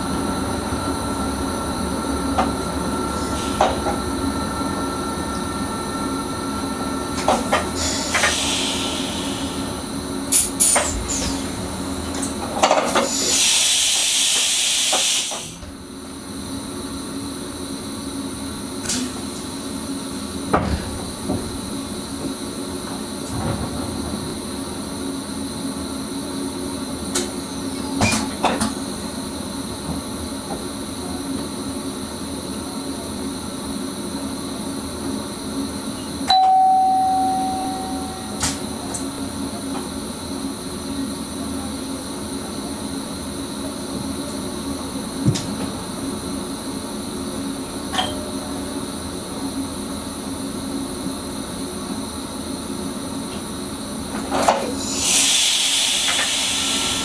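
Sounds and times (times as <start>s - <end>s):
train running noise in cab: 0.0s - 57.0s
bell-like chime: 36.3s - 38.4s.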